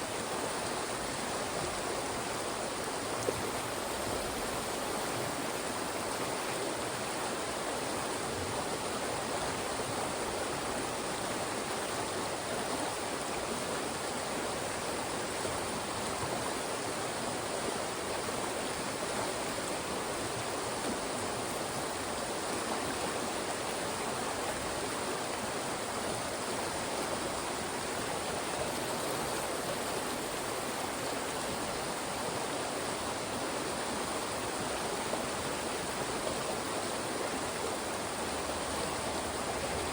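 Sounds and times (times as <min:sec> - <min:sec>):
mountain stream rushing over rocks: 0:00.0 - 0:39.9.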